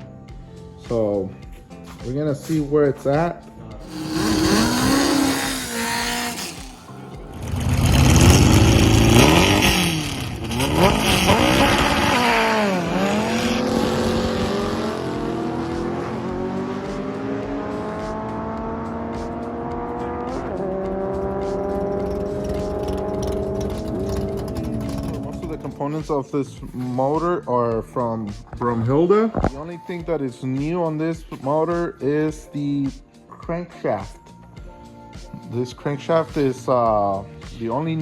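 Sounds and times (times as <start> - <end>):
drag car engine revving: 3.8 - 25.7.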